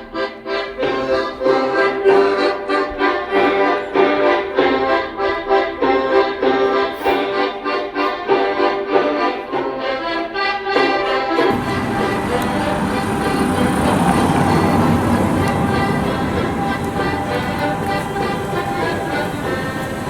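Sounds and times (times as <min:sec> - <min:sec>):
accordion folk tune: 0:00.0 - 0:20.0.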